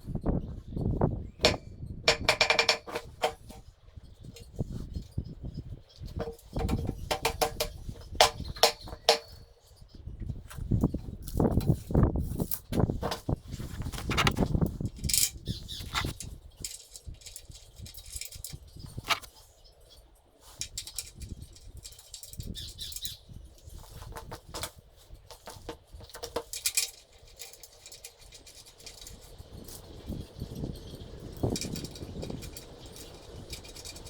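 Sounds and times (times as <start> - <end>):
knocks and clicks: 1.4 - 3.6, 6.2 - 9.3.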